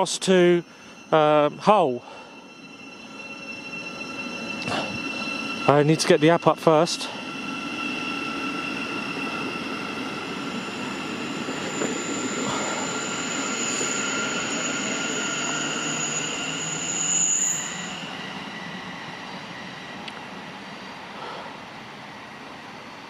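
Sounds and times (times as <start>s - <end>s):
train rumble: 0.0s - 17.0s
high-pitched train squeal: 0.0s - 21.5s.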